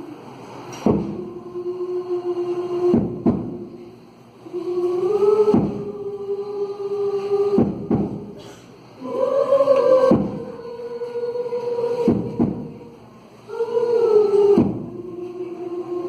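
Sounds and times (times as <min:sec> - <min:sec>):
choir singing long held notes: 0:00.0 - 0:16.0
low thumps: 0:00.8 - 0:01.3, 0:02.8 - 0:03.8, 0:05.4 - 0:06.0, 0:07.5 - 0:08.4, 0:10.0 - 0:10.6, 0:12.0 - 0:12.8, 0:14.5 - 0:15.0.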